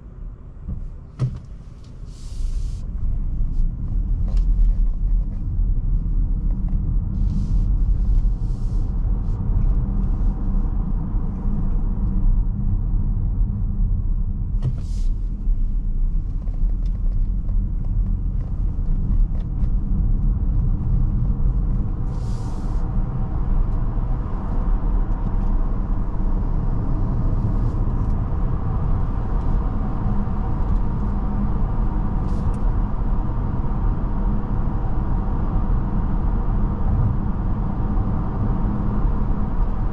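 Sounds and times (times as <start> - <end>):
road and tyre rumble: 0.0 - 39.9
brief hissing: 2.1 - 2.8.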